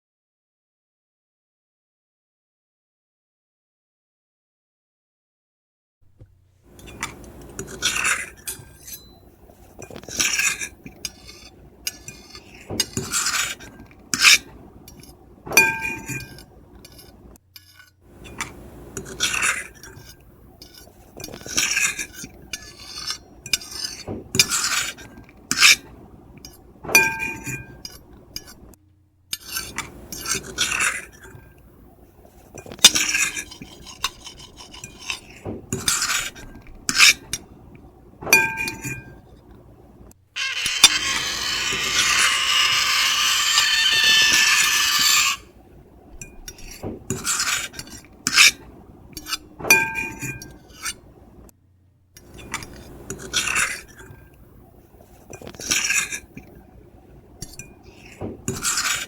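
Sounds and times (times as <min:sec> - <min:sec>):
cutlery scraping ceramic plate: 0:06.7 - 0:31.6, 0:32.4 - 0:37.5, 0:38.3 - 0:39.2, 0:40.4 - 0:45.6, 0:46.2 - 0:51.0, 0:52.2 - 0:54.3, 0:55.2 - 0:56.5, 0:57.4 - 0:59.0
plate ringing with high squeal: 0:08.8 - 0:09.3, 0:40.4 - 0:45.5.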